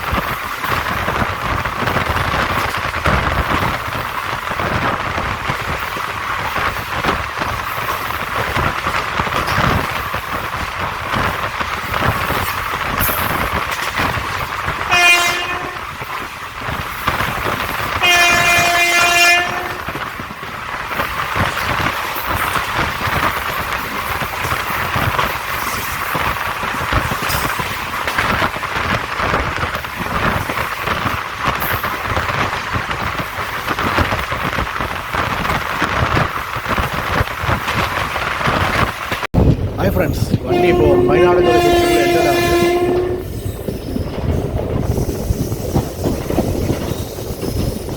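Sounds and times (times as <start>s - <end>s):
train running along track: 0.0s - 47.9s
train horn blasts: 14.8s - 16.0s, 18.0s - 20.0s, 40.3s - 43.4s.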